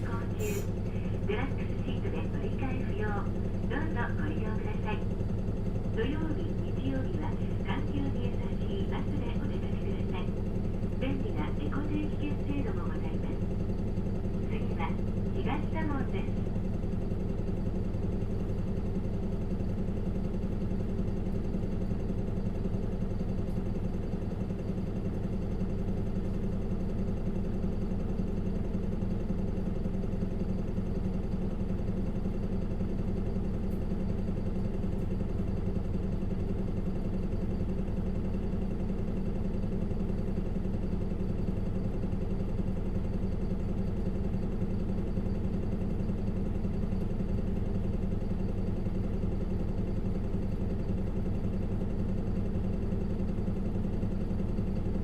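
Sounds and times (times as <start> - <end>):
bus diesel engine running: 0.0 - 27.1.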